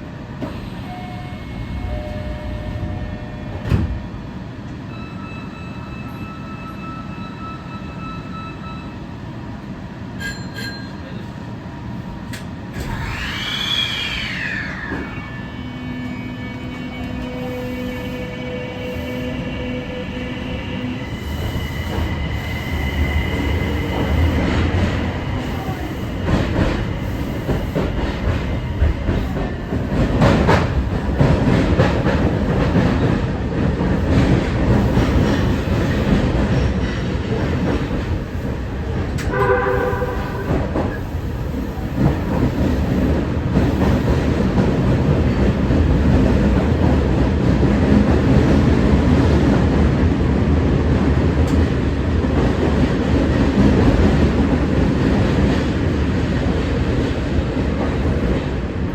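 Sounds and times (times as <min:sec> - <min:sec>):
electric train rumbling on rails: 0:00.0 - 0:58.9
short horn signal: 0:39.3 - 0:40.7.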